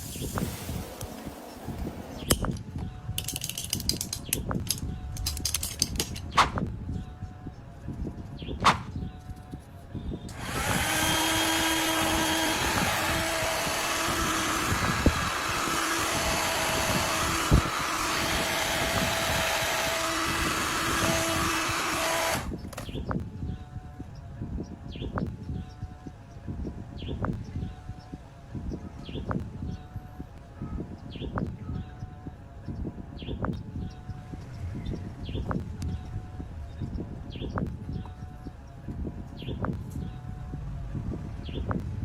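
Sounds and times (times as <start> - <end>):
scattered clicks and knocks: 3.2 - 6.6
electric power tool running: 10.3 - 22.5.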